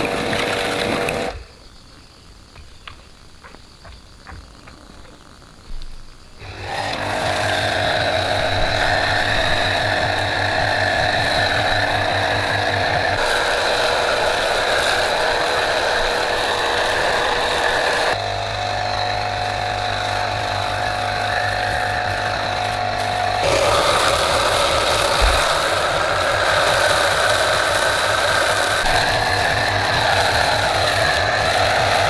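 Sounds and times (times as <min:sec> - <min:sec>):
loud mechanical noise: 0:00.0 - 0:01.4, 0:06.4 - 0:32.0.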